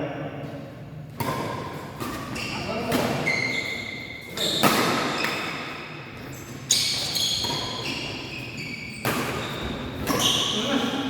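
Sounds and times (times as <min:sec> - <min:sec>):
racket striking shuttlecock: 0:01.1 - 0:03.3, 0:04.3 - 0:05.8, 0:06.8 - 0:08.3, 0:09.0 - 0:10.5.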